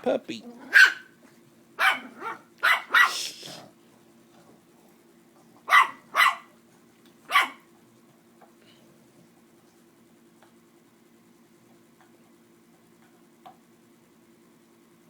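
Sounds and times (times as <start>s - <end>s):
faint steady hum: 0.0s - 15.0s
dogs barking: 0.5s - 1.2s, 1.8s - 3.3s, 5.6s - 6.6s, 7.3s - 7.7s.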